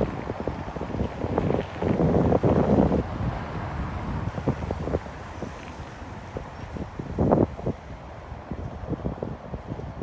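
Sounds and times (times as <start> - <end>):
low street rumble: 0.0 - 10.0
wind buffeting microphone: 0.0 - 10.0.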